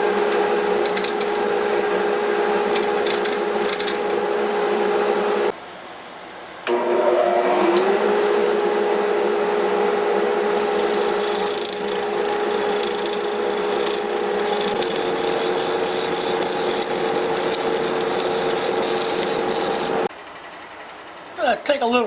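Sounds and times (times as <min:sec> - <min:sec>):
tool scraping wood: 0:00.0 - 0:04.4, 0:10.5 - 0:20.1
lathe motor humming: 0:00.0 - 0:05.5, 0:06.7 - 0:20.1.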